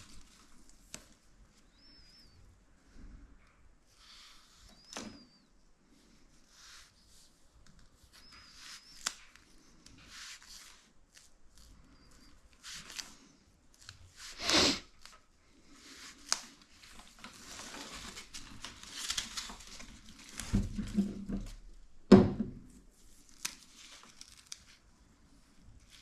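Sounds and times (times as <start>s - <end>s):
rustling and scraping of materials: 3.9s - 21.8s.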